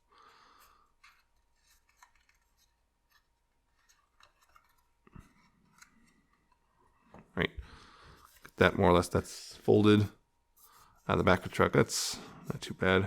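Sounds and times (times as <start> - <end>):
card being folded and creased: 0.6 - 7.2.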